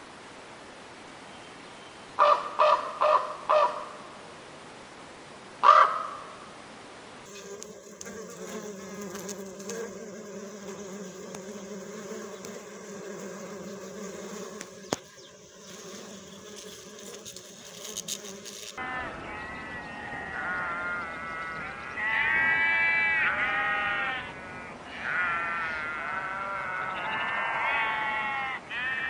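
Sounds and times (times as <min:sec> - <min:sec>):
crow cawing: 0:02.2 - 0:03.9, 0:05.6 - 0:06.2
hoverfly buzzing: 0:07.3 - 0:18.8.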